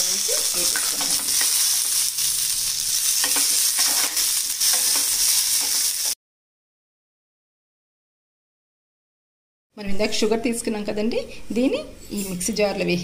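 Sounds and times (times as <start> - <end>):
food sizzling in hot oil: 0.0 - 6.2
metal spoon scraping pan: 3.1 - 5.9.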